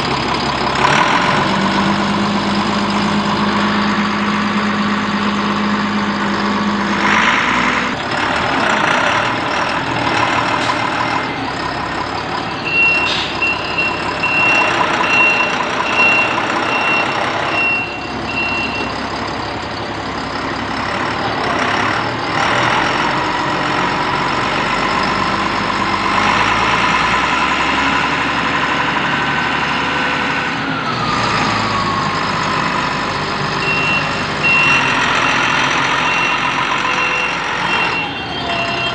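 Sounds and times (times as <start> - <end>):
diesel engine running: 0.0 - 38.9
reversing alarm beeping: 9.4 - 19.2, 28.9 - 38.9.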